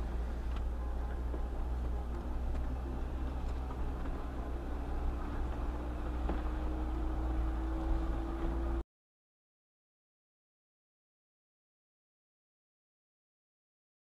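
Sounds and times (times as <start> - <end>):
engine and drivetrain rumble: 0.0 - 8.8.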